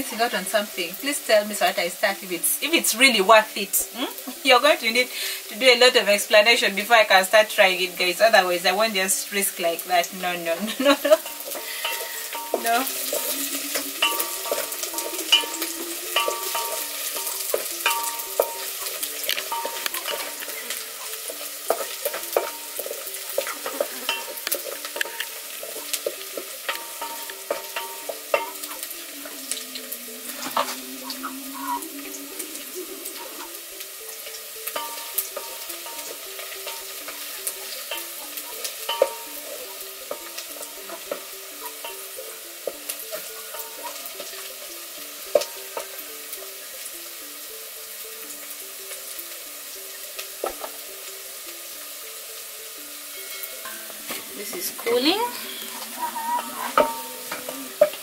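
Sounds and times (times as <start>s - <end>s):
food sizzling in oil: 0.0s - 58.0s.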